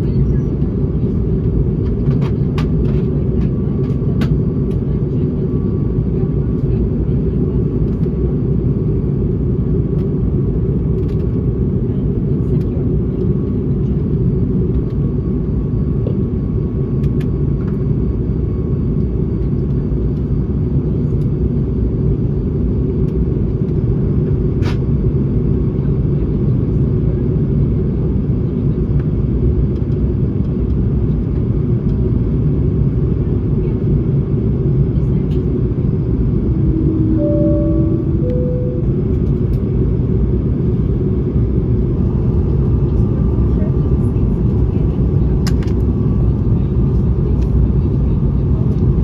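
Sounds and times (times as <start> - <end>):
airplane cabin engine rumble: 0.0 - 49.0
short steady tones: 36.5 - 39.2.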